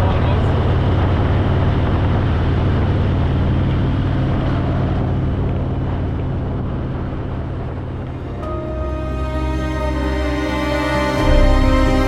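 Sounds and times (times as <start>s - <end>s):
wind rushing over microphone: 0.0s - 8.8s.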